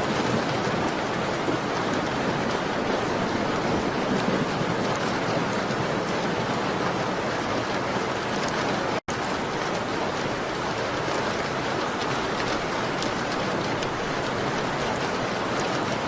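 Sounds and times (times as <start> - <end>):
rain on a window: 0.0 - 16.0.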